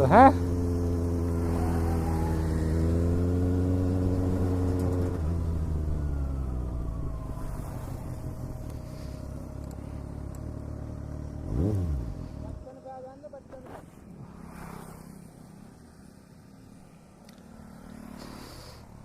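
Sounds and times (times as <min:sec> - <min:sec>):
motorcycle engine running: 0:00.0 - 0:13.7.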